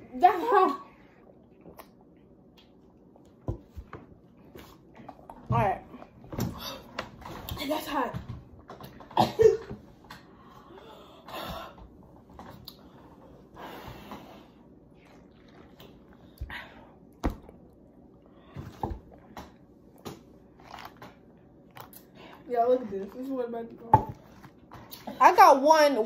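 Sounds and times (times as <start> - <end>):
person breathing: 10.3 - 11.9, 12.8 - 14.7.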